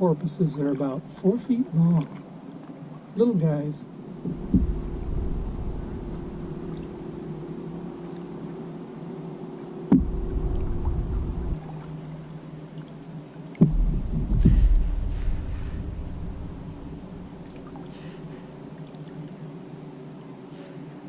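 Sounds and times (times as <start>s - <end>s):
water sounds: 0.0s - 21.0s
low rumbling: 4.0s - 8.6s, 9.9s - 12.7s, 13.6s - 18.8s.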